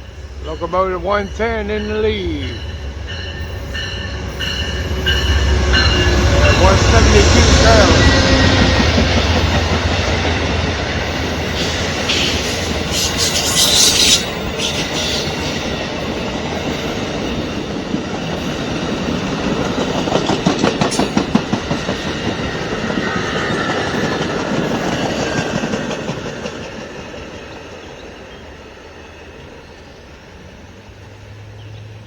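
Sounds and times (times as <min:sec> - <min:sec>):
train wheels clicking over rail joints: 0:03.2 - 0:28.0.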